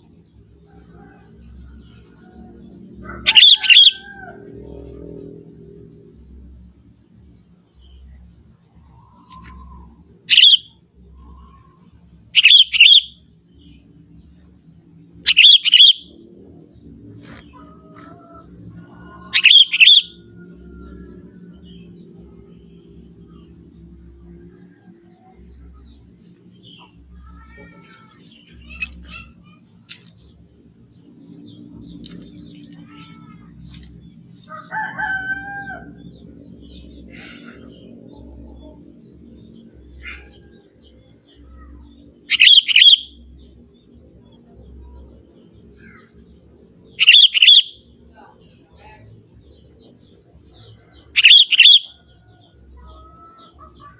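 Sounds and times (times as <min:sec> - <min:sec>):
steady low hum: 0:00.0 - 0:42.4, 0:43.0 - 0:47.0
bird chirping: 0:01.0 - 0:53.9
drawn-out crowing call: 0:02.9 - 0:05.1, 0:34.4 - 0:36.2
bird chirping and whistling: 0:03.3 - 0:04.0, 0:10.3 - 0:10.7, 0:12.3 - 0:13.2, 0:15.3 - 0:16.1, 0:19.3 - 0:20.2, 0:42.3 - 0:43.2, 0:47.0 - 0:47.8, 0:51.2 - 0:52.0.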